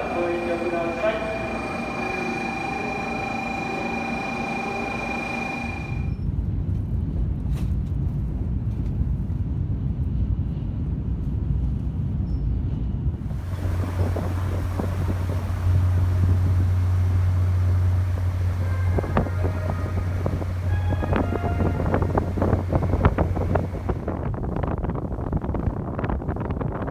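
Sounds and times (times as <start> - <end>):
low engine drone: 0.0 - 6.2, 13.2 - 24.2
vehicle rumble: 13.2 - 24.3
wind on microphone: 13.2 - 26.9
water hissing: 13.3 - 24.1.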